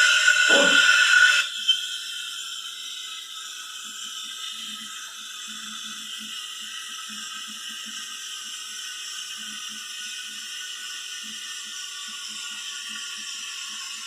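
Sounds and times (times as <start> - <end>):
espresso machine hissing: 0.0 - 3.4.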